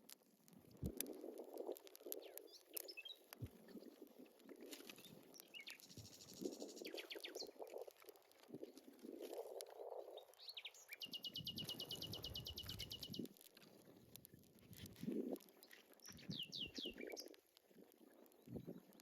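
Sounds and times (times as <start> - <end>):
songbirds chirping: 10.0 - 13.3, 15.6 - 17.4.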